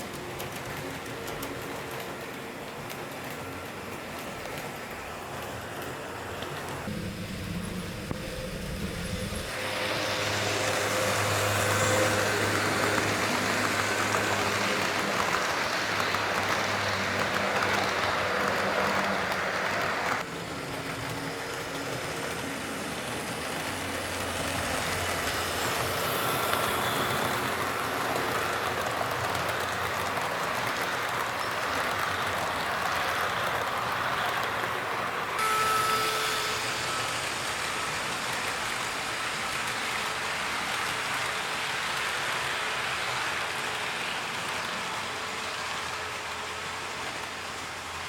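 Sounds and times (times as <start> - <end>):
model train wheels rolling on rail: 0.0 - 48.0
faint motor whine: 3.5 - 15.4, 35.4 - 40.5.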